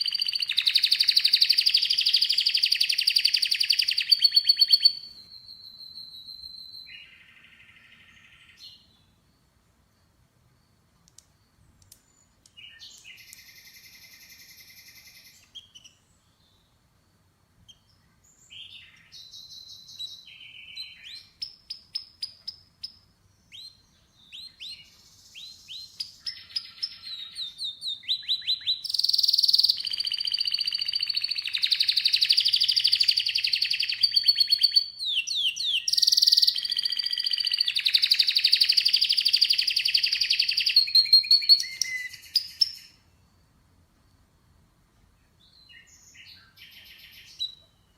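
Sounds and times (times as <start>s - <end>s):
canary singing trills: 0.0s - 9.1s, 12.0s - 16.6s, 17.7s - 43.1s.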